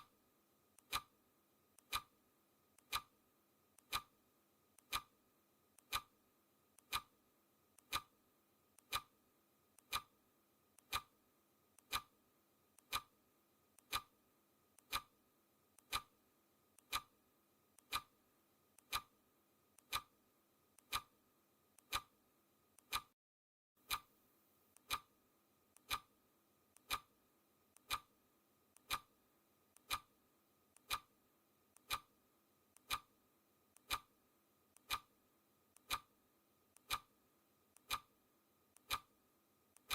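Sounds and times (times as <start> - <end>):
clock ticking: 0.8 - 1.1, 1.8 - 2.1, 2.8 - 3.1, 3.8 - 4.1, 4.8 - 5.1, 5.8 - 6.1, 6.8 - 7.1, 7.8 - 8.1, 8.8 - 9.1, 9.8 - 10.1, 10.8 - 11.1, 11.8 - 12.1, 12.8 - 13.1, 13.8 - 14.1, 14.8 - 15.1, 15.8 - 16.1, 16.8 - 17.1, 17.8 - 18.2, 18.8 - 19.1, 19.8 - 20.2, 20.8 - 21.1, 21.8 - 22.1, 22.8 - 23.2, 23.8 - 24.1, 24.8 - 25.1, 25.8 - 26.1, 26.8 - 27.1, 27.8 - 28.1, 28.8 - 29.1, 29.8 - 30.1, 30.8 - 31.1, 31.8 - 32.1, 32.8 - 33.1, 33.8 - 34.2, 34.8 - 35.1, 35.8 - 36.1, 36.8 - 37.1, 37.8 - 38.1, 38.8 - 39.1.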